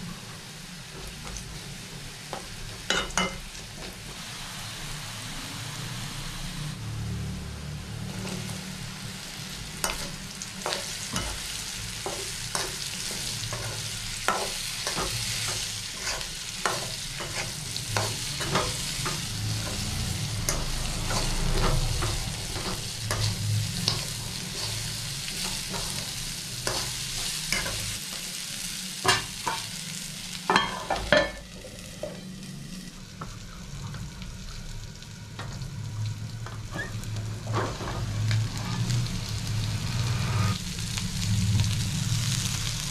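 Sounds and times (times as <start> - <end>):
vegetables sizzling in hot oil: 0.0 - 42.9
spoon scraping a pan: 12.1 - 19.8.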